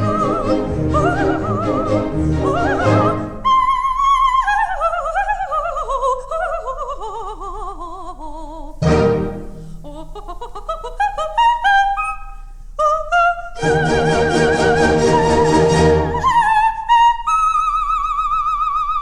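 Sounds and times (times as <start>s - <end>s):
orchestra playing: 0.0s - 3.4s, 8.8s - 9.8s, 13.6s - 16.4s
soprano singing opera: 0.0s - 19.0s.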